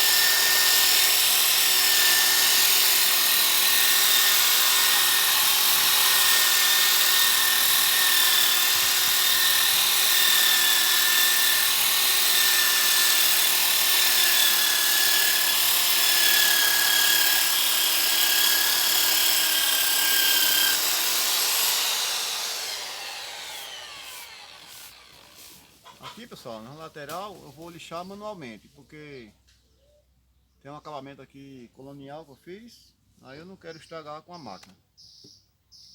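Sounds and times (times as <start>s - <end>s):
power sander whining: 0.0s - 25.8s
sanding rasp on wood: 19.7s - 25.9s.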